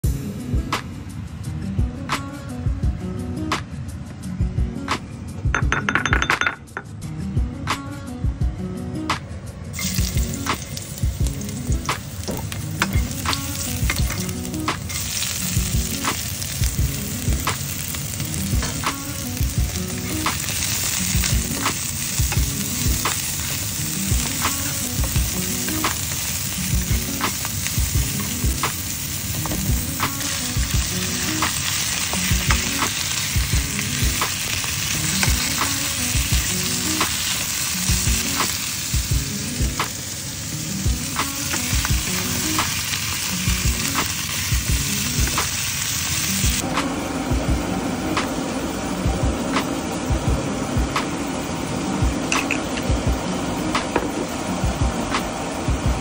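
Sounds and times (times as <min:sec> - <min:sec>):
sizzling in hot oil: 0:09.7 - 0:56.0.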